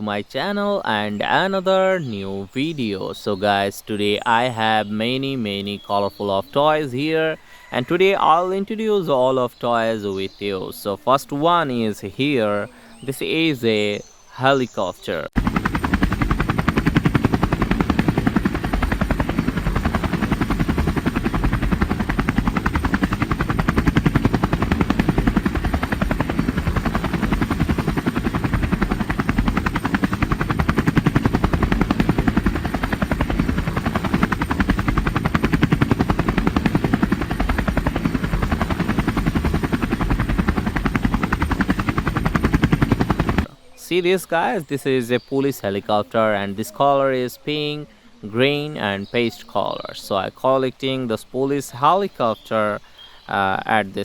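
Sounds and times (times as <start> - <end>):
toy helicopter rotor chopping: 15.4 - 43.5.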